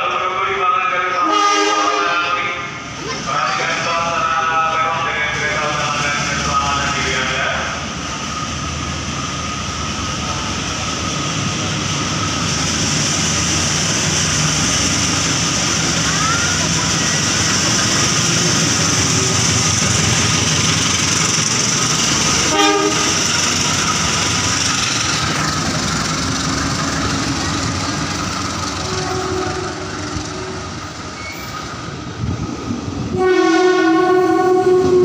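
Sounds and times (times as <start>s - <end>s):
train rumble and wheel noise: 0.0s - 35.0s
train horn blast: 1.2s - 2.4s, 22.4s - 23.2s, 28.8s - 30.7s, 33.1s - 35.0s.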